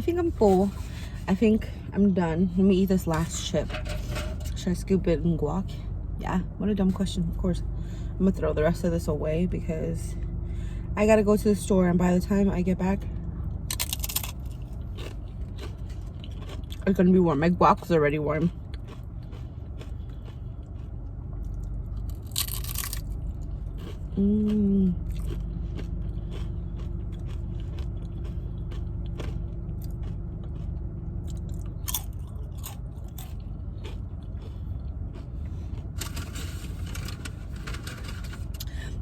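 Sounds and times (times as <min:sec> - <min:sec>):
chips being chewed crunching: 0:13.7 - 0:17.1, 0:18.4 - 0:38.9.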